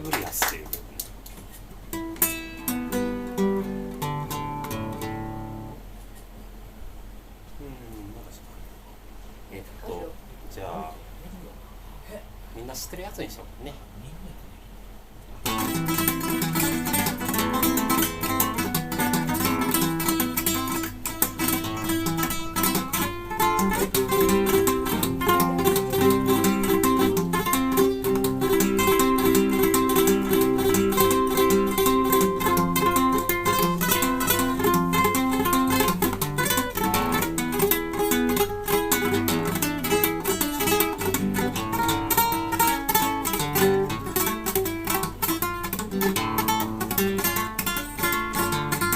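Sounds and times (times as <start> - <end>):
classical guitar: 1.8 - 5.8, 15.4 - 48.9.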